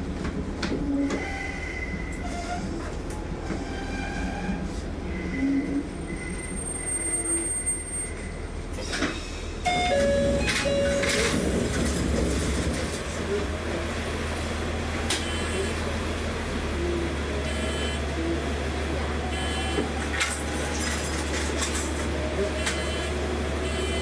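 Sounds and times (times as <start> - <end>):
diesel railcar rumble: 0.0 - 24.0
brakes and wheels squealing: 3.5 - 9.5.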